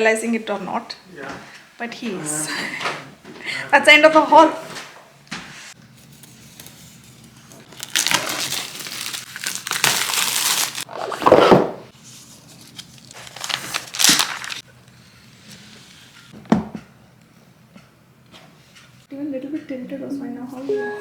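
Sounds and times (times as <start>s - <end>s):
packaging rustling and crinkling: 7.6s - 11.5s, 12.4s - 14.6s.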